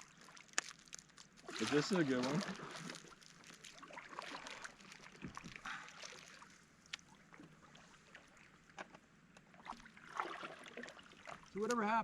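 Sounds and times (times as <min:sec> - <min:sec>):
fishing gear clicks and knocks: 0:00.0 - 0:03.8.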